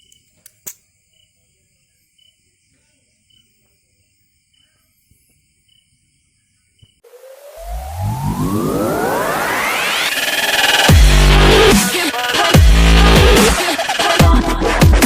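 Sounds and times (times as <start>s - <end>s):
high-pitched outdoor ambience: 7.0s - 12.5s
electronic music with rising sweep: 7.1s - 14.2s.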